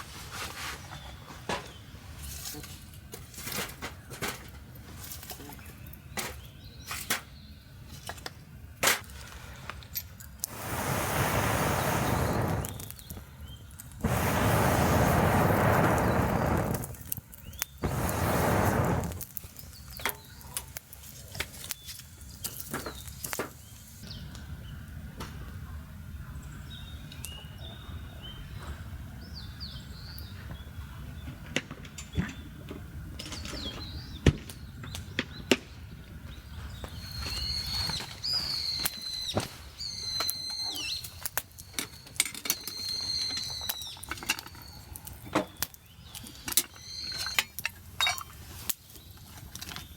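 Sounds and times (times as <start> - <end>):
sharp clicks and crackles: 10.2 - 23.5
birds chirping: 10.5 - 20.6, 33.3 - 47.4.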